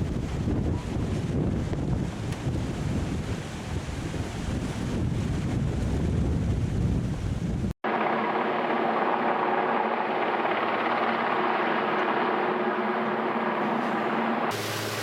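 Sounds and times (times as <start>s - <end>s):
wind buffeting microphone: 0.0s - 7.8s
steady mechanical drone: 7.8s - 15.0s
surf rushing: 8.2s - 15.0s.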